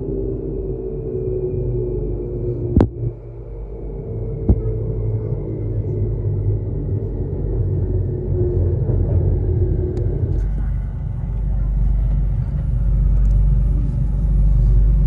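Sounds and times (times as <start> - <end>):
electric train rumble and hum: 0.0 - 15.0
faint falling whine: 0.0 - 15.0.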